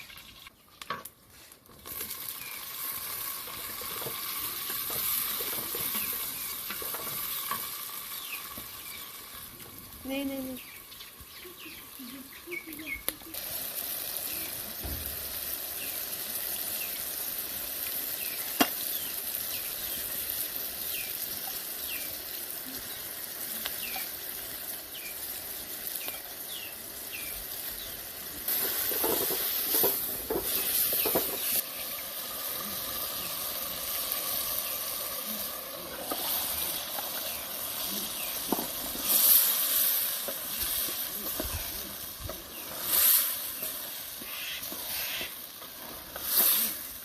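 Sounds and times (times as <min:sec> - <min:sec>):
food sizzling in hot oil: 0:00.0 - 0:47.0
stirring and scraping pan: 0:00.9 - 0:07.8, 0:28.5 - 0:31.6, 0:35.8 - 0:46.9
bird chirping: 0:10.5 - 0:13.3.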